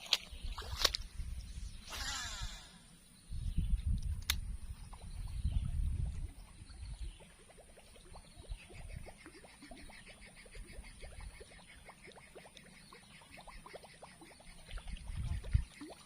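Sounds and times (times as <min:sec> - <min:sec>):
low rumble on microphone: 0:00.4 - 0:07.3
fast high pulsing call: 0:01.9 - 0:02.9
sharp click: 0:04.0 - 0:04.4.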